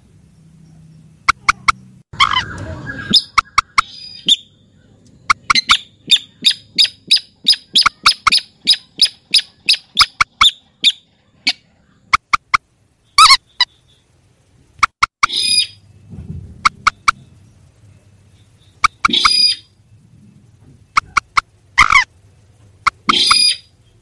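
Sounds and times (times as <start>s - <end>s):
rail calling sharp clicking notes: 1.2s - 4.4s, 5.0s - 11.0s, 12.1s - 13.7s, 16.6s - 17.4s, 18.4s - 19.7s, 20.9s - 23.7s
harsh bird call: 1.3s - 4.6s, 18.7s - 19.8s, 22.9s - 23.9s.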